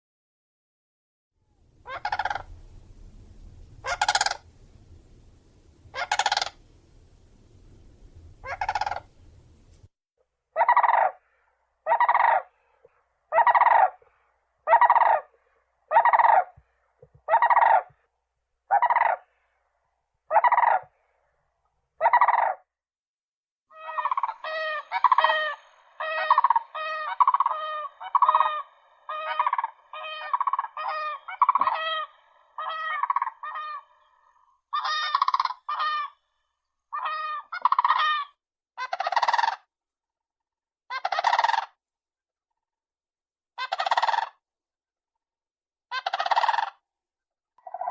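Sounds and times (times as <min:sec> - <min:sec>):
cranes trumpeting calls: 0:01.8 - 0:02.6, 0:03.8 - 0:04.4, 0:05.9 - 0:06.6, 0:08.4 - 0:09.1, 0:23.7 - 0:36.2, 0:37.0 - 0:38.3.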